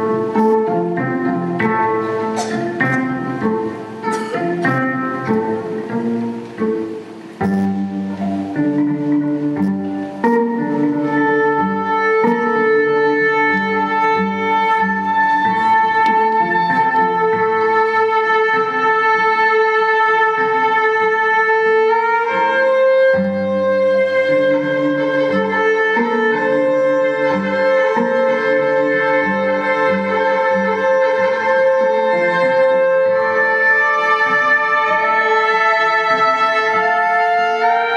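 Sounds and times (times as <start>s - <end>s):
bowed violin notes: 0.0s - 37.9s
repeating rhythmic figure: 7.4s - 8.2s.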